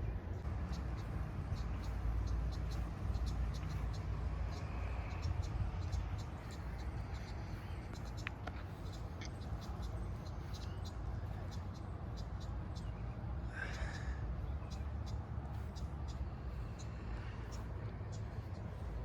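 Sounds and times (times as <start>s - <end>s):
wind rumble on microphone: 0.0s - 13.4s.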